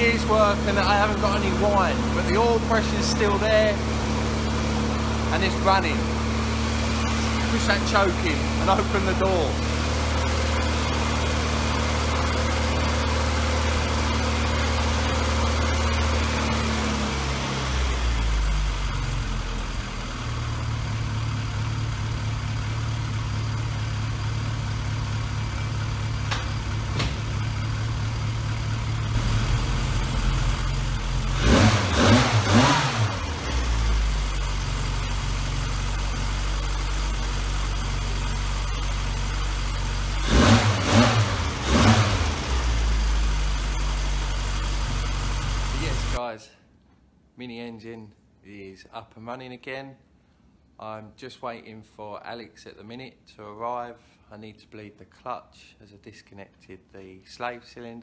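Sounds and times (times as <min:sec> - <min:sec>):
car engine idling and revving: 0:00.0 - 0:46.2.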